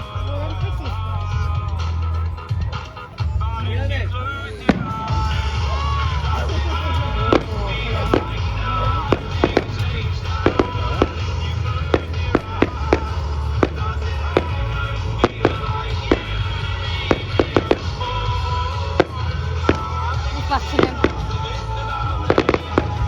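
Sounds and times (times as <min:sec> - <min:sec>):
loud music with bass: 0:00.0 - 0:23.0
fireworks bangs and cracks: 0:04.6 - 0:23.0.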